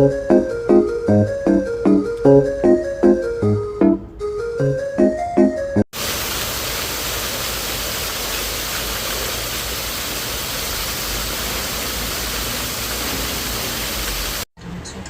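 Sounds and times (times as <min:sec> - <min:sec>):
water rushing: 0:06.0 - 0:14.5.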